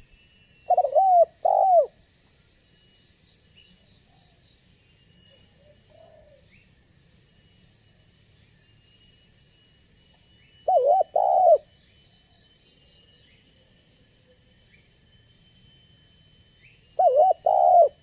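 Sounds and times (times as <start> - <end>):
faint high-pitched tones: 0.0 - 18.0
dove cooing: 0.7 - 1.9, 10.7 - 11.6, 17.0 - 18.0.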